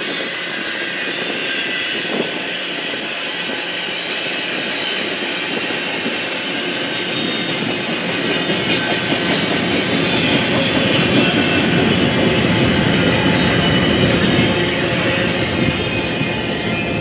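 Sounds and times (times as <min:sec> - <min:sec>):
freight train wheels clattering: 0:00.0 - 0:17.0.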